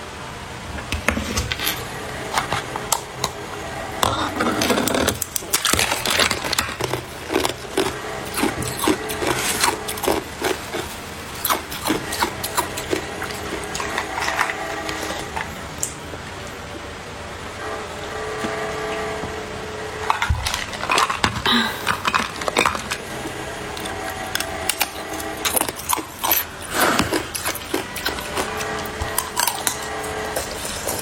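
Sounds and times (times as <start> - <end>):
ice being chewed: 4.1 - 16.0, 20.0 - 31.0.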